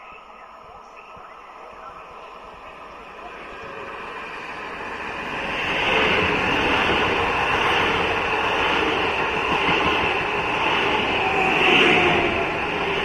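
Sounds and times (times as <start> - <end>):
electric train passing: 0.0 - 13.0.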